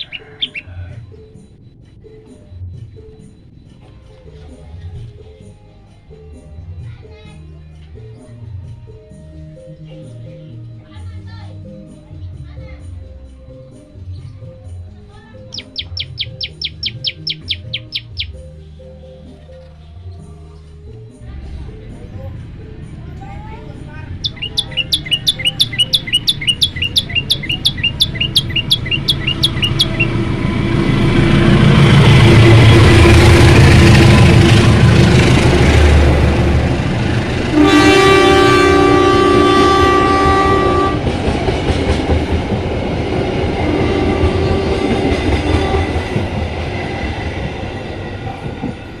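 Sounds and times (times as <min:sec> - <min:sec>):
engine-like rumble: 0:13.9 - 0:49.0
bird chip notes: 0:15.4 - 0:19.4, 0:24.2 - 0:30.3
faint train horn chord: 0:35.9 - 0:41.2, 0:43.7 - 0:46.2.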